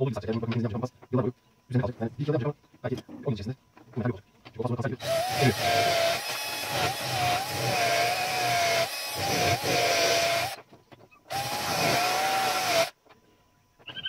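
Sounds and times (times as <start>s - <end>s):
power tool whining on metal: 5.0s - 10.6s, 11.3s - 13.0s.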